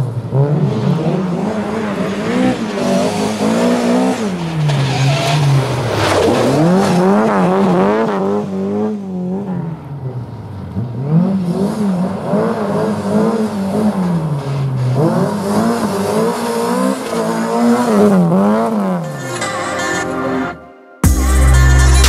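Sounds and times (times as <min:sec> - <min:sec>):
race car engine revving: 0:00.0 - 0:19.2.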